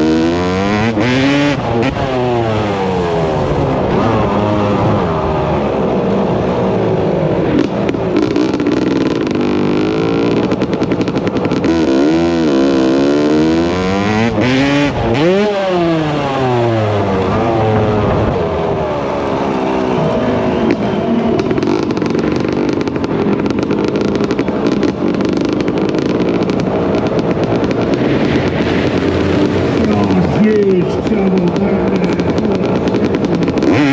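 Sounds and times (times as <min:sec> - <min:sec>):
dirt bike engines revving: 0:00.0 - 0:33.9.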